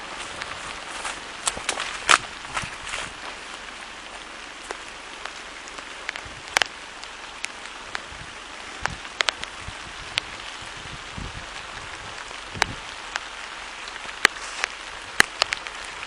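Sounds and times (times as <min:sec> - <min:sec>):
rain hissing: 0:00.0 - 0:16.0
sharp taps of raindrops: 0:00.0 - 0:16.0.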